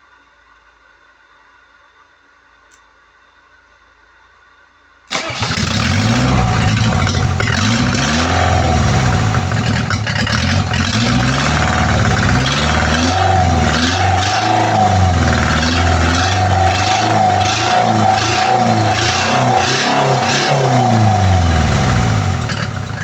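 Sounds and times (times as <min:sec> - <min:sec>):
tractor engine revving: 0:05.1 - 0:23.0.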